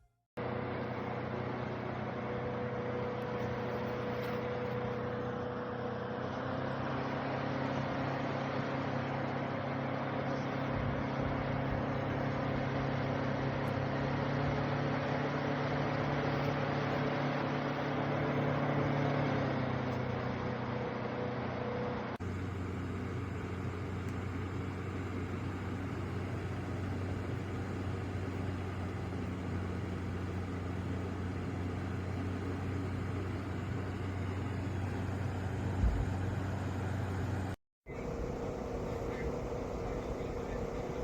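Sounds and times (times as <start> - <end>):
fan whirring with motor hum: 0.4 - 41.0
low thump: 35.8 - 36.2.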